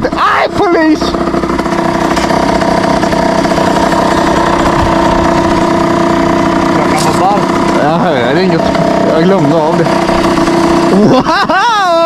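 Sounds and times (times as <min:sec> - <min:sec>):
motorbike engine idling: 0:00.0 - 0:12.0.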